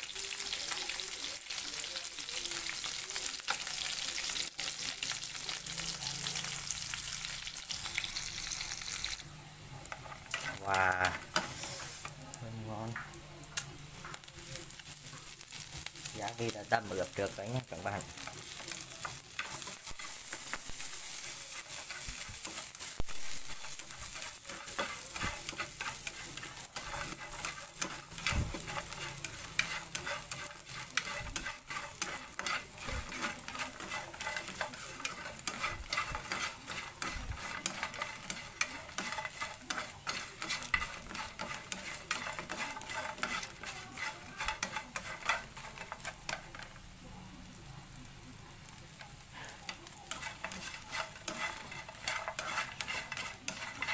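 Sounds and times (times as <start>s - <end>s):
meat sizzling in a pan: 0.0s - 53.9s
utensil scraping and clicking: 24.2s - 46.4s, 50.1s - 53.9s.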